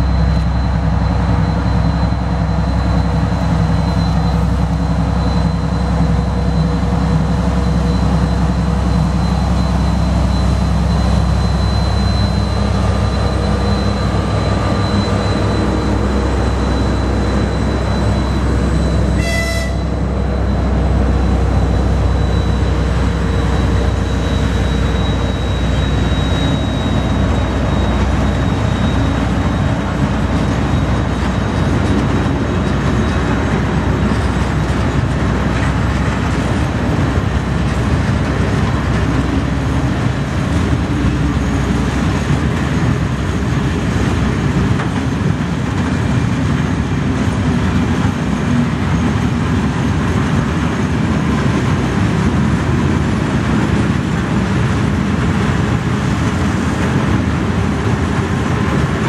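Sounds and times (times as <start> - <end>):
short high-pitched tone: 0.0 - 29.6
freight train rolling past: 0.0 - 59.0
thin high whine: 0.0 - 59.0.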